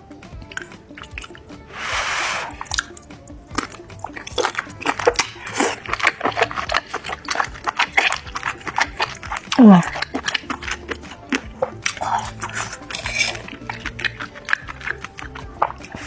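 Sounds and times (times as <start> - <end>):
crunchy chewing: 0.0 - 16.0
wet smacks: 0.2 - 16.0
short hiss: 1.7 - 2.8.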